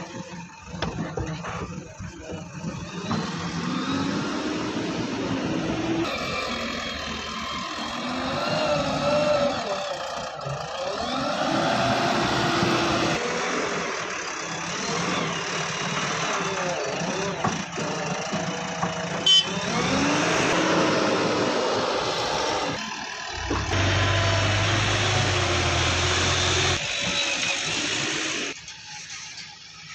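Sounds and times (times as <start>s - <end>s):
diesel engine working: 0.0s - 28.6s
low hum: 23.3s - 26.7s.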